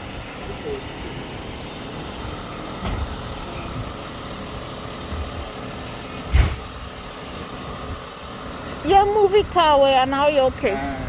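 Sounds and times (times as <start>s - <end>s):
truck engine idling: 0.0s - 11.0s
sharp loud thump: 2.8s - 3.2s, 6.3s - 6.7s
low thuds: 6.3s - 6.8s.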